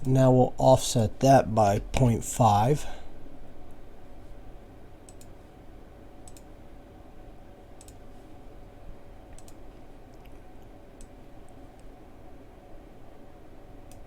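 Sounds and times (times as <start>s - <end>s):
low steady hum: 0.0s - 14.0s
computer mouse clicking: 5.0s - 5.4s, 6.2s - 6.5s, 7.8s - 8.0s, 9.3s - 10.4s.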